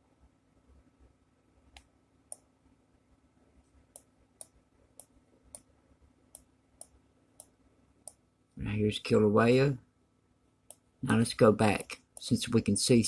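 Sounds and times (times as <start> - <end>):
computer mouse clicks: 1.7 - 2.5, 3.9 - 5.7, 6.3 - 8.2.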